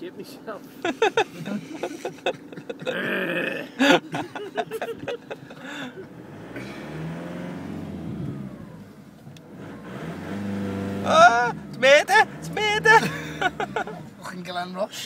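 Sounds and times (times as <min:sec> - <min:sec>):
car engine accelerating: 0:00.8 - 0:14.6
man's voice: 0:11.1 - 0:13.6.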